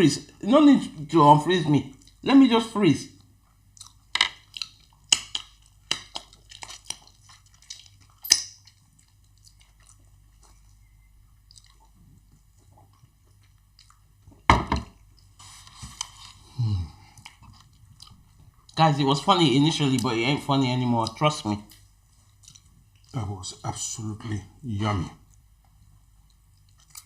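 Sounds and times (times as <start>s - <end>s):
wet chewing: 3.1s - 16.4s, 17.0s - 18.8s, 21.0s - 23.3s, 25.2s - 27.0s
lip smacks and mouth clicks: 3.5s - 10.7s, 11.3s - 14.1s.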